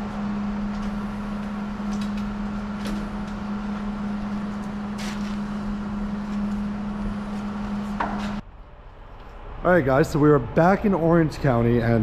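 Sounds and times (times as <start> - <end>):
engine humming steadily: 0.0 - 12.0.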